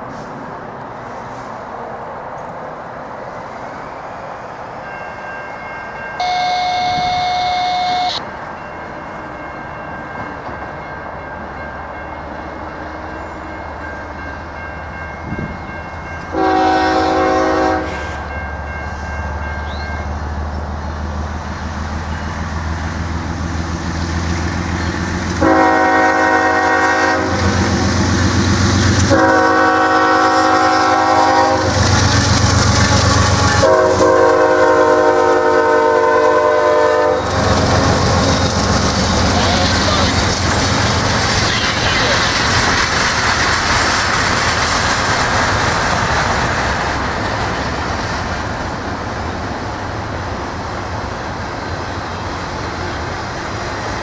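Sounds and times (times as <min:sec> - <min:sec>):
train rumble: 0:00.0 - 0:54.0
locomotive air horn blasts: 0:06.2 - 0:08.2, 0:16.3 - 0:18.3, 0:25.4 - 0:27.8, 0:29.0 - 0:37.9.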